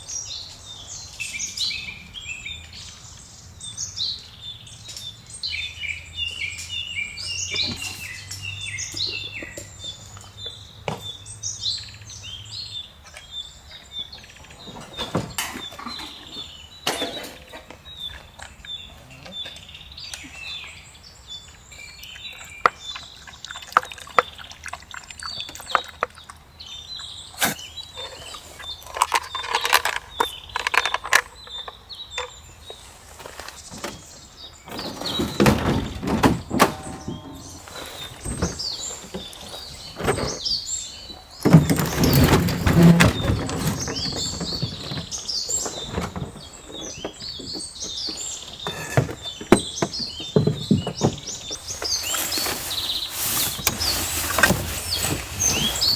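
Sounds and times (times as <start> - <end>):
wild birds chirping: 0.0 - 55.9
handling clicks and knocks: 27.4 - 32.4, 33.6 - 40.5, 41.2 - 55.9.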